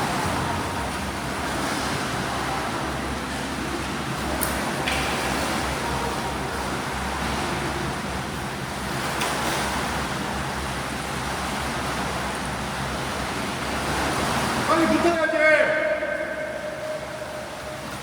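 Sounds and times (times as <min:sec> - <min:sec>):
swimmers splashing water: 0:00.0 - 0:18.0.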